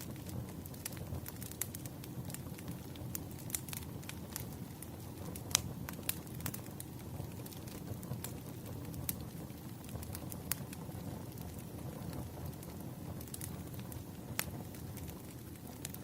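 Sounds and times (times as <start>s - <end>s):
campfire flames rushing: 0.0s - 16.0s
wood crackling and popping: 0.0s - 16.0s.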